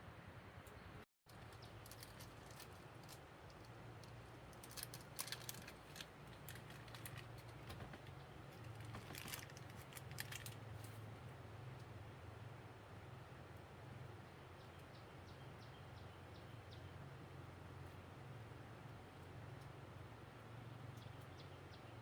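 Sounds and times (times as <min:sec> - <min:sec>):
small clicks and handling noises: 0:00.7 - 0:11.1.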